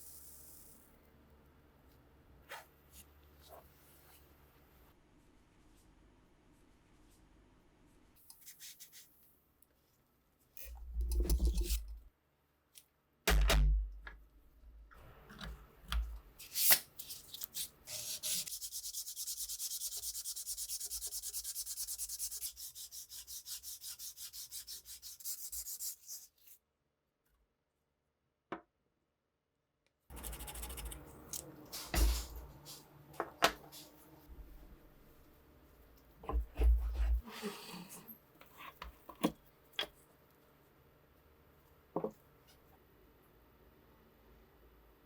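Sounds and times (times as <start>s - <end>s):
hand sanding strokes: 17.9s - 26.3s.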